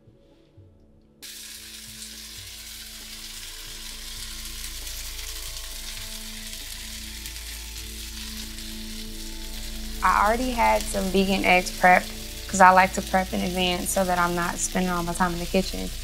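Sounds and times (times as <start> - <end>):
food sizzling in a skillet: 1.2 - 16.0.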